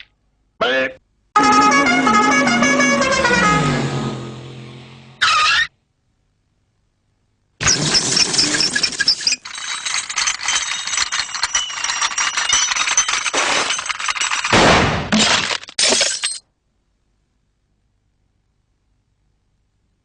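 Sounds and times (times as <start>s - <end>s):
cartoon clatter and crashes: 7.6s - 15.8s
clinking and breaking: 7.6s - 16.5s.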